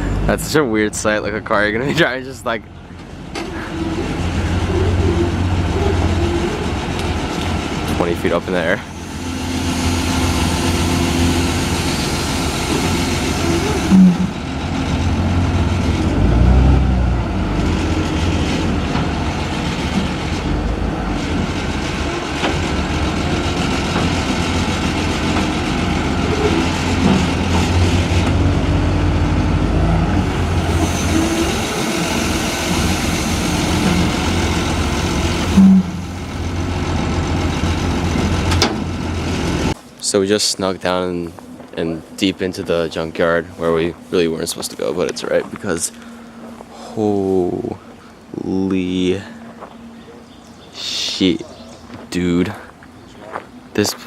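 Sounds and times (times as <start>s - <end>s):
forklift diesel engine running: 0.0s - 39.8s
short loud tones: 13.4s - 14.4s, 35.5s - 36.2s.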